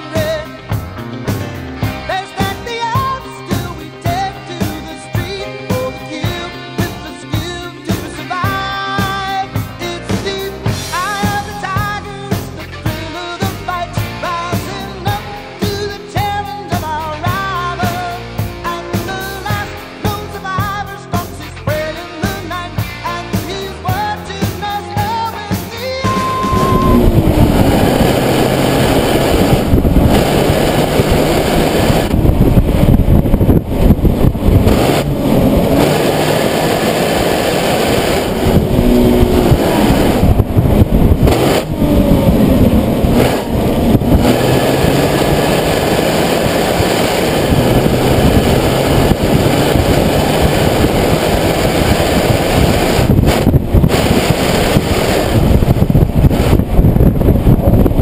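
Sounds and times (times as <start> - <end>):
car engine running: 26.2 - 58.0
wind and road noise: 26.3 - 58.0.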